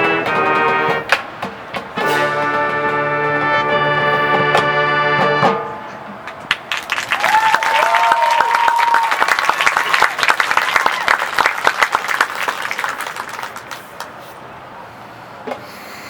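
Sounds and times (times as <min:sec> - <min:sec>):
band music: 0:00.0 - 0:06.1
audience applauding and cheering: 0:06.5 - 0:14.2.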